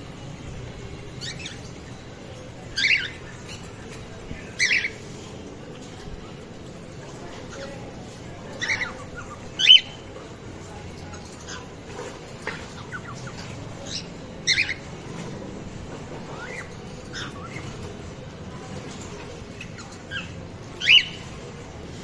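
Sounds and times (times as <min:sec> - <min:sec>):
cockatiels calling: 0:01.2 - 0:02.0, 0:02.6 - 0:05.1, 0:08.5 - 0:10.1, 0:11.1 - 0:15.3, 0:16.1 - 0:18.2, 0:18.9 - 0:21.4.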